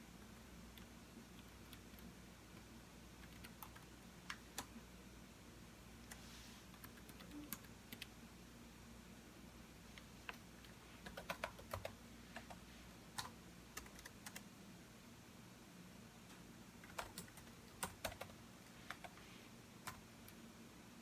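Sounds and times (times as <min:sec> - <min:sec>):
computer keyboard typing: 0:00.3 - 0:04.8, 0:06.8 - 0:08.1, 0:10.2 - 0:14.4, 0:16.8 - 0:19.2, 0:19.8 - 0:20.4.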